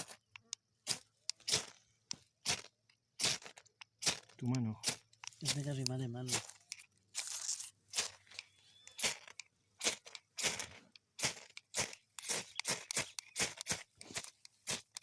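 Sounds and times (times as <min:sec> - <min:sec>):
fire striker scraping: 0:03.2 - 0:15.0.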